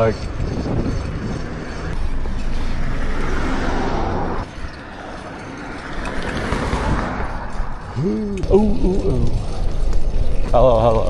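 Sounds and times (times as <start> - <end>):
passing vehicle rush: 0.0 - 11.0.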